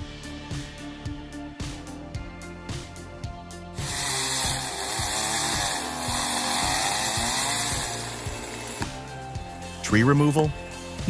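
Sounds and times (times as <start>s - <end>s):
background music: 0.0s - 11.0s
chainsaw cutting: 3.7s - 9.6s.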